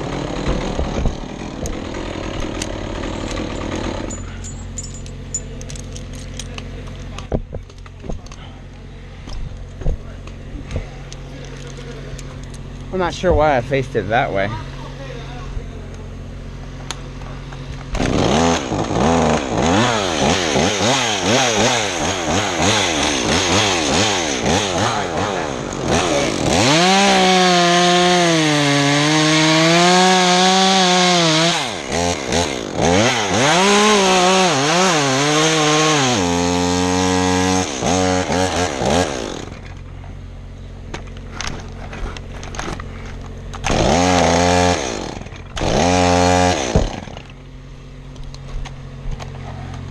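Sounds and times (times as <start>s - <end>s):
chainsaw cutting wood: 0.0s - 5.4s, 16.8s - 39.9s, 41.0s - 47.4s.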